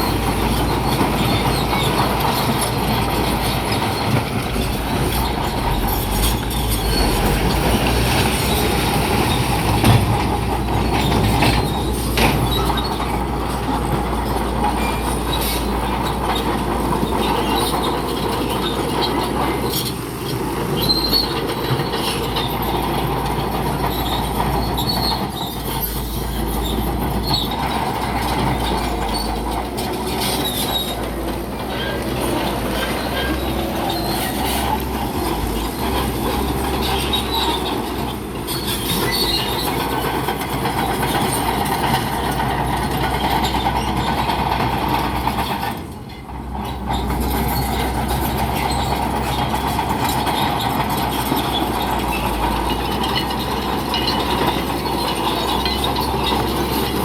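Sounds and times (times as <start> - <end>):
diesel engine running: 0.0 - 57.0
steel tracks clanking and squealing: 0.0 - 57.0.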